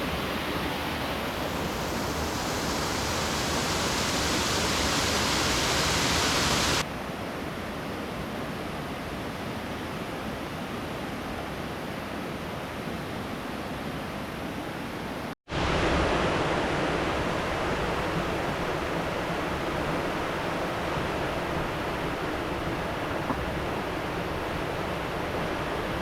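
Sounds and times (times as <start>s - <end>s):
river water rushing: 0.0s - 6.8s, 15.5s - 26.0s.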